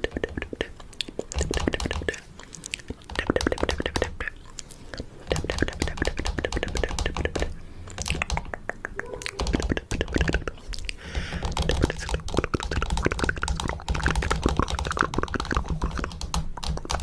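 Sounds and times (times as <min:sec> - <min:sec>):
mouth sounds: 0:00.0 - 0:17.0
fingernails tapping on camera: 0:05.3 - 0:10.4.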